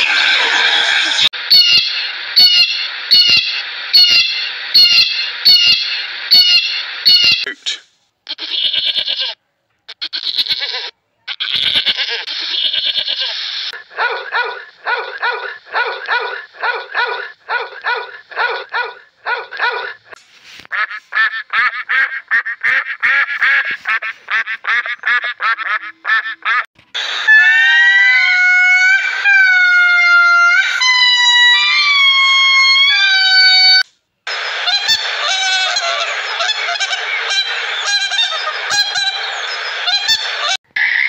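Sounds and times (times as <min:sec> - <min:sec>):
animal harsh calls: 0:08.3 - 0:20.2.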